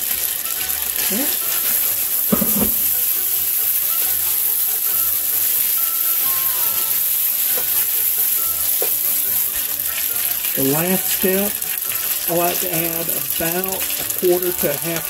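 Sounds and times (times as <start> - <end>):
food sizzling in hot oil: 0.0 - 15.0
wooden spoon stirring: 0.0 - 15.0.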